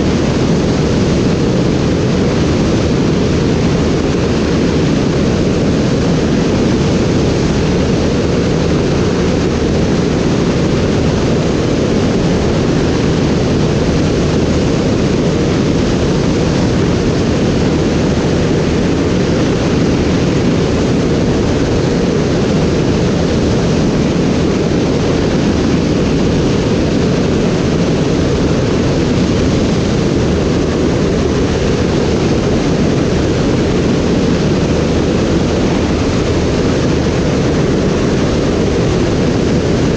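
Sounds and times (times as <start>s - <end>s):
aircraft in flight rushing: 0.0s - 39.9s.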